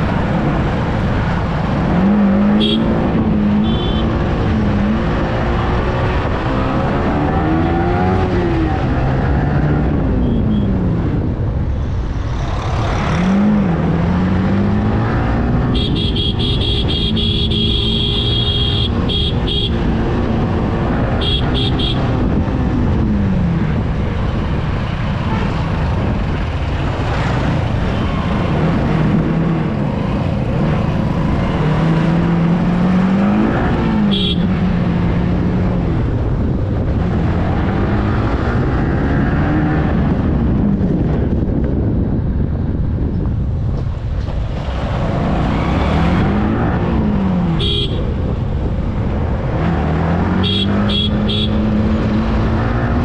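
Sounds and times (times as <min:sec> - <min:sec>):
wind and road rush: 0:00.0 - 0:53.0
horn toot: 0:02.5 - 0:02.9, 0:03.6 - 0:04.2, 0:15.7 - 0:19.8, 0:21.2 - 0:22.1, 0:34.1 - 0:34.5, 0:47.6 - 0:48.0, 0:50.4 - 0:51.7
motorcycle engine revving: 0:49.4 - 0:53.0.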